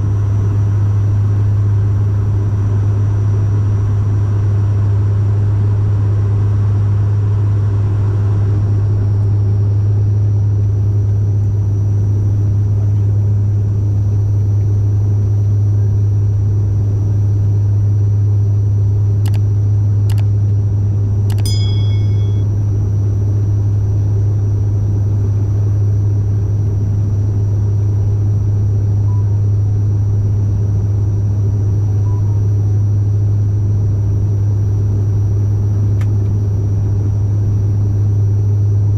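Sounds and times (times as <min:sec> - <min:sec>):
turboprop engines droning in cabin: 0:00.0 - 0:38.9
clicks: 0:21.3 - 0:22.4
short chime-like tone: 0:21.3 - 0:22.5.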